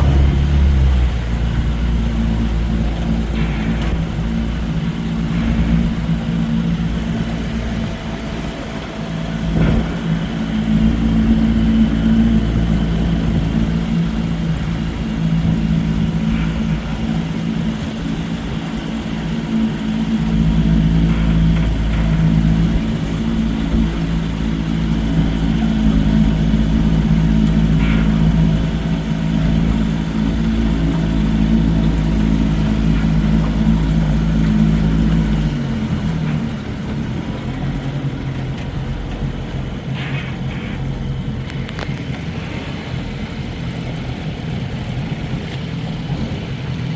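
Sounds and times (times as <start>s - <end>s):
low unsteady rumble: 0.0s - 46.9s
outboard motor running: 0.0s - 46.9s.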